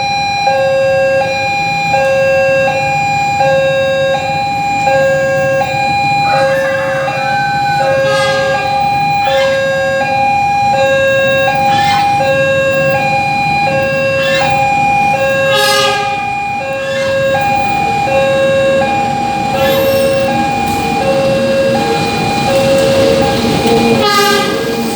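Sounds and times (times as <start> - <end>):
two-tone crossing alarm: 0.0 - 24.9.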